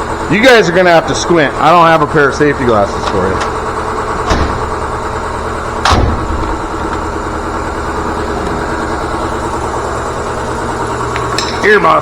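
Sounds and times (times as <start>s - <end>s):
air compressor running: 0.0s - 12.0s
sharp knock: 5.9s - 6.6s.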